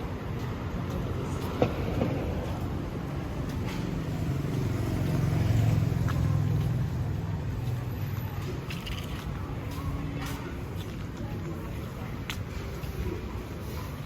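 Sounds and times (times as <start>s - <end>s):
traffic engine rumble: 0.0s - 14.0s
vehicle passing: 1.2s - 9.0s.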